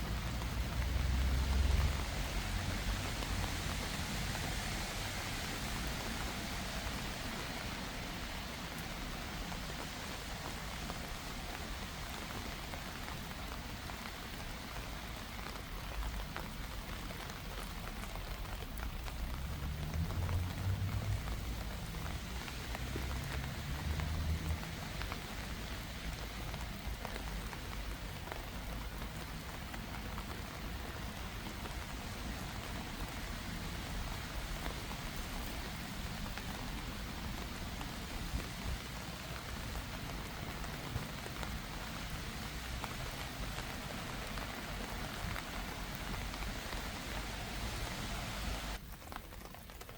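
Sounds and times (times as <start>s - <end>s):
rain pattering: 0.0s - 49.9s.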